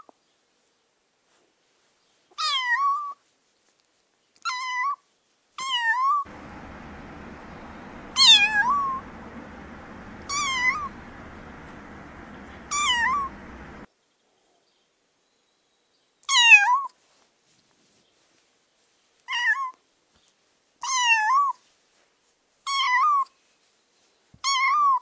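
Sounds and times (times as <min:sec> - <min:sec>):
faint steady hiss: 0:06.3 - 0:13.9.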